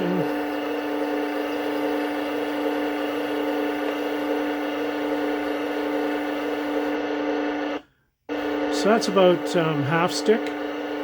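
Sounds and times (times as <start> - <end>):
toy tank engine hum from speaker: 0.0 - 6.8.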